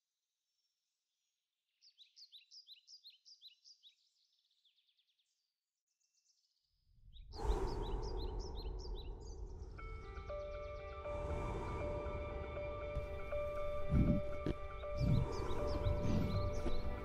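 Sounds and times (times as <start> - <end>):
bird chirping: 0.6 - 17.0.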